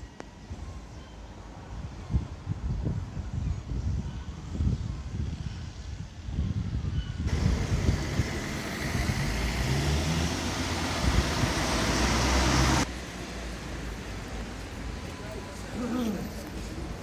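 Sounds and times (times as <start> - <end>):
vehicle engine and tyre noise: 7.3 - 15.6.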